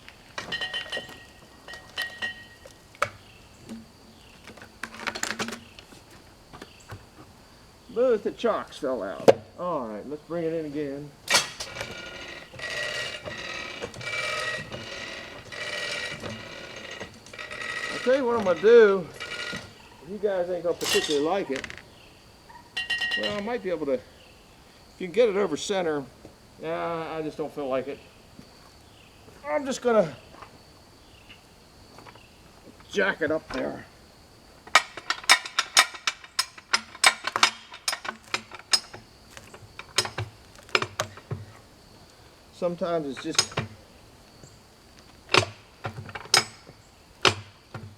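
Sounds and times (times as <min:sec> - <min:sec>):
metal jack clicking: 0:11.3 - 0:19.7.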